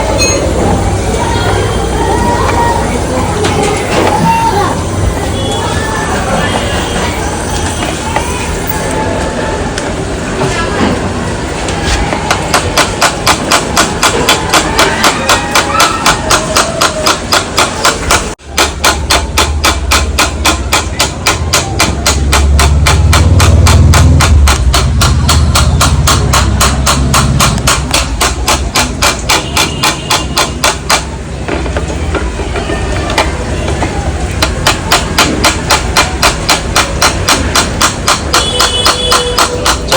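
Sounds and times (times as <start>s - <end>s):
rapid hammer blows on metal: 12.1s - 39.9s.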